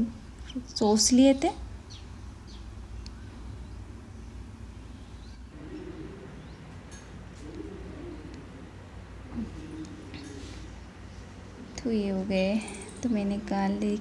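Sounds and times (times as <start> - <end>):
steady low hum: 0.0 - 14.0
bird cooing softly: 5.5 - 12.0.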